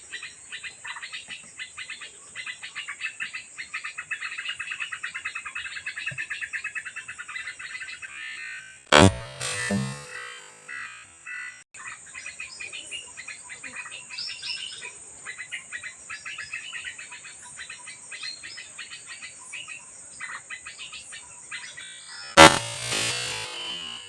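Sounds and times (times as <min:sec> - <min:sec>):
high insect buzz: 0:08.9 - 0:10.8, 0:22.4 - 0:24.0.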